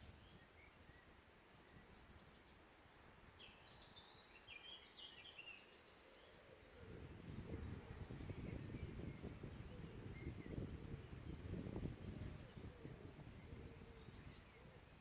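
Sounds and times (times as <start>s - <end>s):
wind rumble on microphone: 0.0s - 2.4s, 6.8s - 15.0s
distant bird calls: 0.0s - 15.0s
songbird chirping: 0.0s - 15.0s.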